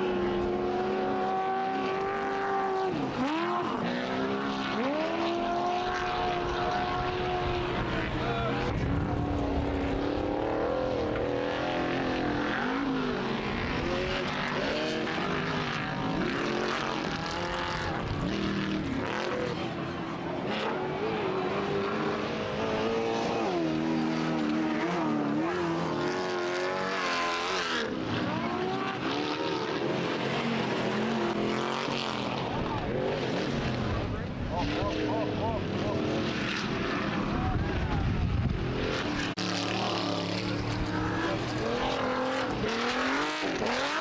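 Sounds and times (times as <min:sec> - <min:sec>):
race engines revving hard: 0:00.0 - 0:44.0.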